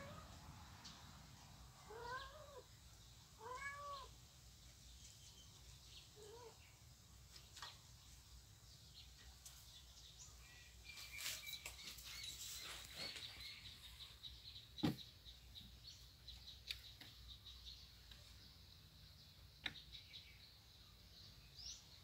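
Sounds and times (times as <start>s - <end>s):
small birds chirping faintly: 0.0s - 22.0s
soft thump: 14.8s - 15.0s.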